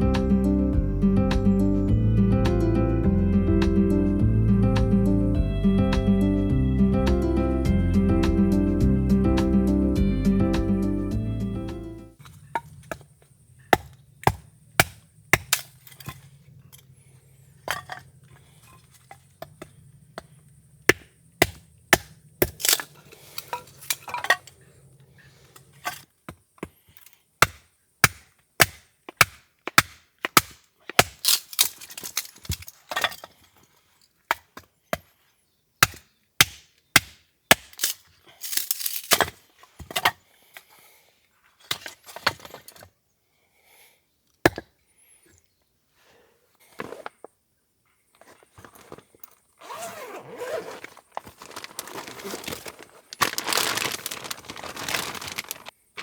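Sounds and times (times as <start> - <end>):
blade chopping wood: 13.8 - 16.2, 20.9 - 22.8, 27.4 - 32.6, 35.8 - 40.1.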